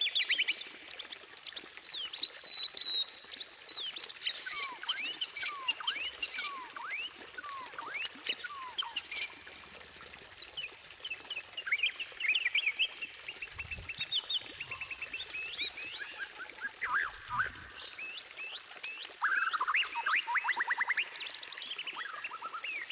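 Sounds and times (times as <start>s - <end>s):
bird singing whistles and trills: 2.0s - 9.3s, 11.6s - 22.9s.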